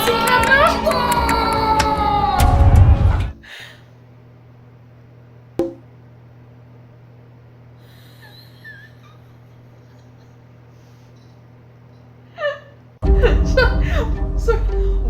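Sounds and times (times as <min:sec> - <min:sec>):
low electrical hum: 0:03.3 - 0:15.0.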